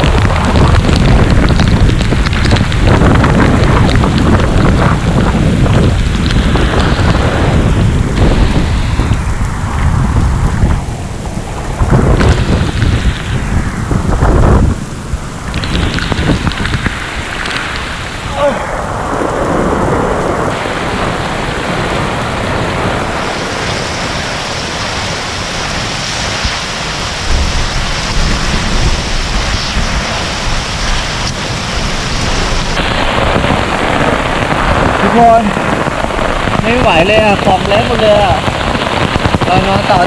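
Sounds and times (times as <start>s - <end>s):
heavy rain pouring: 0.0s - 40.0s
thunder rumbles: 0.0s - 40.0s.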